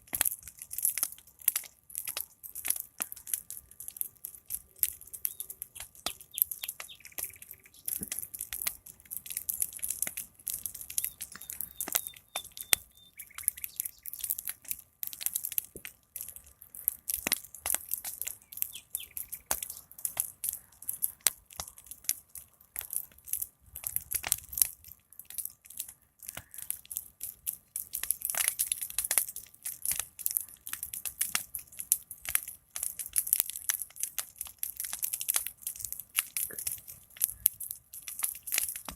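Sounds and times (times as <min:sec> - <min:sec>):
fire crackling and popping: 0:00.0 - 0:38.9
faint bird chirps: 0:05.2 - 0:08.0, 0:10.9 - 0:14.4, 0:18.4 - 0:19.8.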